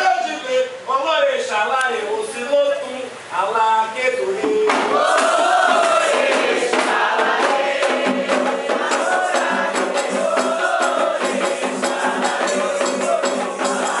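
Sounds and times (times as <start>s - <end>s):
rhythmic hand percussion: 4.4s - 14.0s
voices singing a chant: 4.5s - 14.0s.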